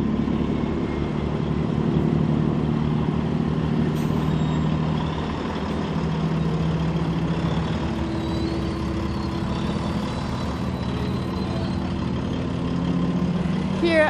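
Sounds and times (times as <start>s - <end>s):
truck diesel engines idling: 0.0s - 14.0s.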